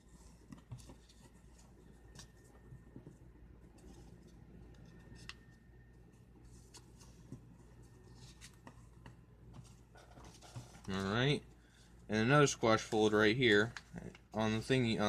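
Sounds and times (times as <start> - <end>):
paper being folded: 3.7 - 11.8.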